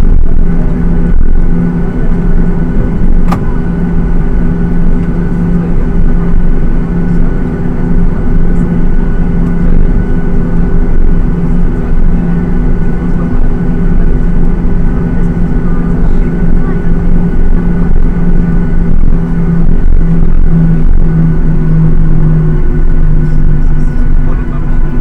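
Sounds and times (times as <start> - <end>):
jet cabin engine drone: 0.0 - 25.0
short click: 3.3 - 3.5.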